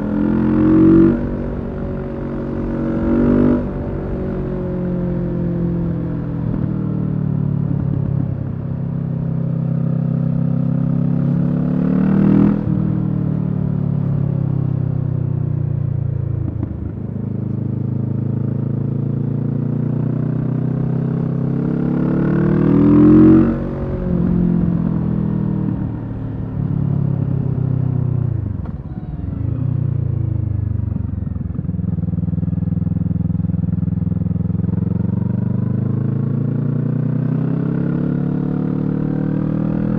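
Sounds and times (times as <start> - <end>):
motorcycle engine revving under load: 16.4 - 39.9.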